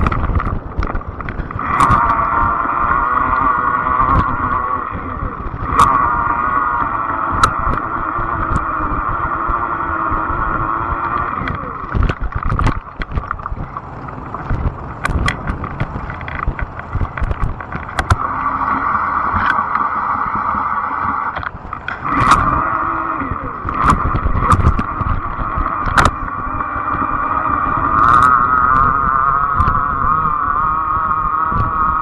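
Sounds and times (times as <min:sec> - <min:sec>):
knocks and rattles over bumps: 0:00.0 - 0:04.6, 0:07.3 - 0:18.4
e-bike motor whine: 0:00.0 - 0:32.0.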